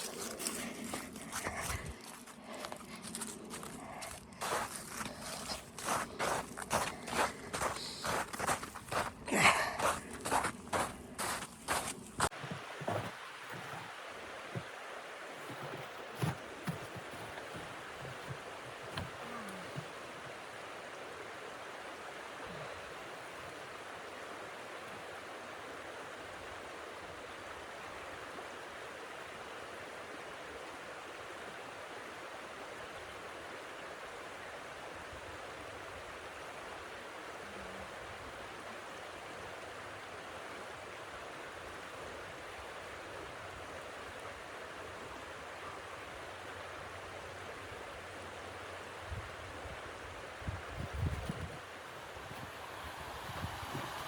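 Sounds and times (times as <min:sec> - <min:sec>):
blizzard wind rushing: 0:50.5 - 0:54.0.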